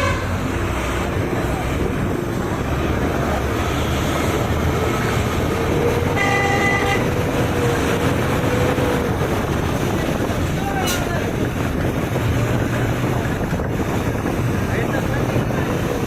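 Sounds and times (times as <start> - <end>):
vehicle horn honking: 0.0 - 0.4, 6.1 - 7.2
loud rushing noise: 0.0 - 16.0.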